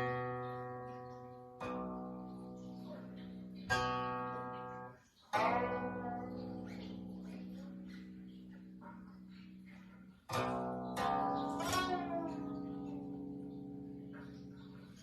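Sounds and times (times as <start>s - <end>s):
zither plucked notes: 0.0s - 15.0s.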